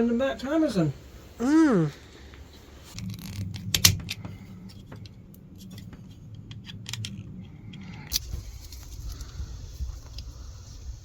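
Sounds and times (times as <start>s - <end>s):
low steady rumble: 0.0s - 11.0s
small hard parts clicking: 2.9s - 9.4s.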